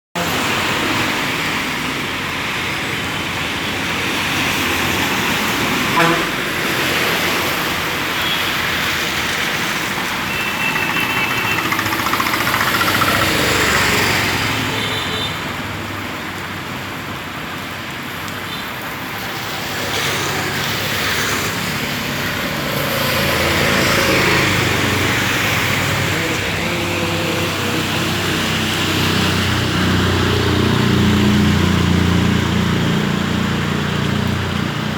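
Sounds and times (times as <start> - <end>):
vehicles passing on wet road: 0.2 - 34.9
heavy rain: 13.5 - 34.9.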